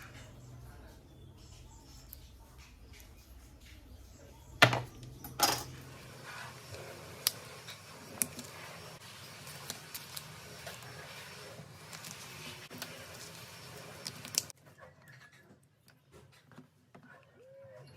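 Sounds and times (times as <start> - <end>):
metal parts knocking: 4.6 - 5.7.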